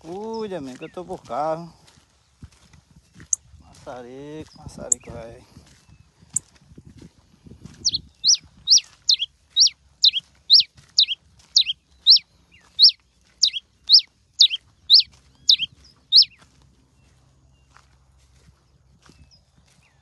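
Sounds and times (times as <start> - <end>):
finch singing sharp notes: 7.8 - 17.7.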